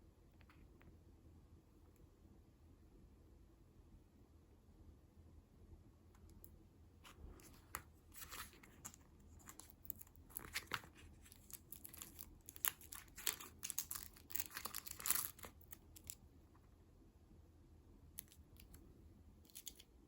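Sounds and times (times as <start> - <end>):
snack packaging crinkling and tearing: 7.4 - 16.2.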